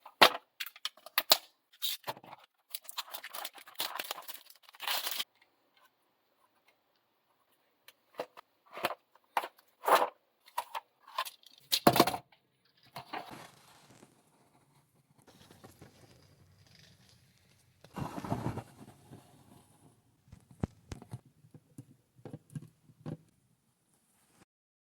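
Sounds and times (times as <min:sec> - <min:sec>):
packaging crackling and tearing: 0:02.7 - 0:05.2.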